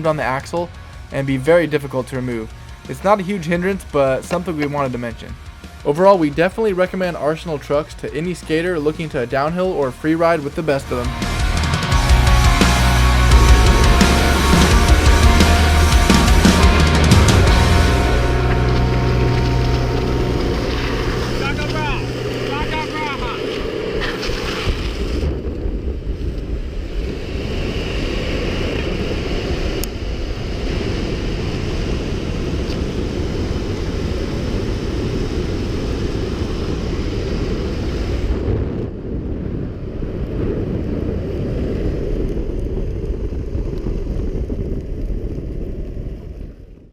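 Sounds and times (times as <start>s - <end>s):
wind on microphone: 13.4s - 46.9s
wheels rolling on asphalt: 17.0s - 46.9s.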